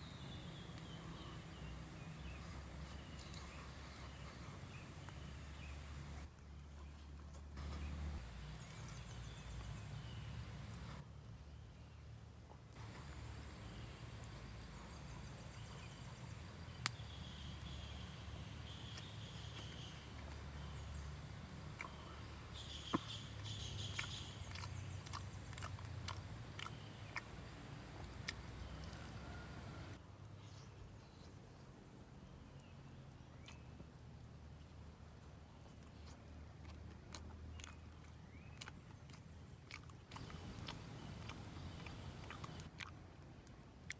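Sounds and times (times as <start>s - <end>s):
insects droning: 0.0s - 6.2s, 7.6s - 11.0s, 12.8s - 30.0s, 40.1s - 42.7s.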